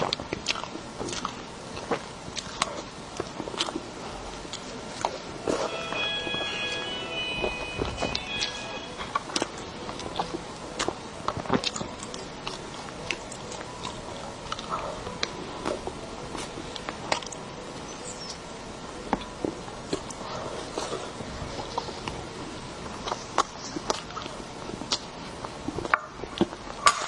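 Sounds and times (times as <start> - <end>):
wet chewing and lip smacks: 0.1 - 3.8.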